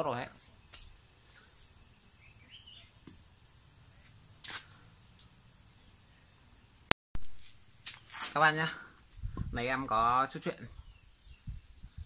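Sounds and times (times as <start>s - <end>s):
faint bird chirps: 0.4s - 8.1s, 10.5s - 12.0s.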